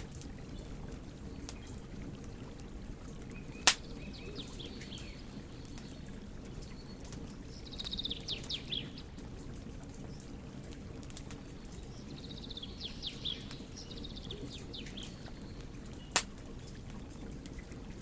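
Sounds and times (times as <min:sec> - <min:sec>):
wood fire crackling: 0:00.0 - 0:18.0
bird chirping: 0:06.8 - 0:09.0, 0:11.8 - 0:16.2.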